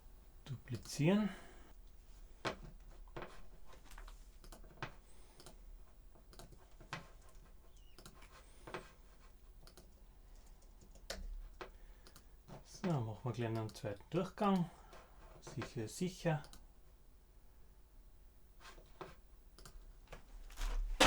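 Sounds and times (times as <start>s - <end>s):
keyboard and mouse clicks: 2.5s - 5.6s, 6.2s - 9.0s, 9.6s - 13.8s, 19.0s - 19.8s.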